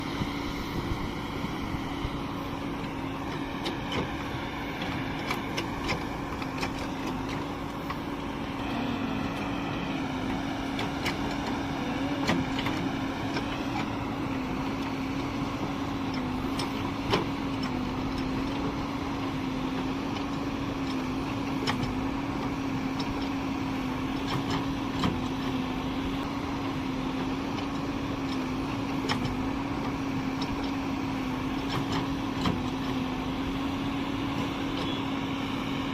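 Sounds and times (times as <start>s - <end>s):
heavy diesel engine running: 0.0s - 35.9s.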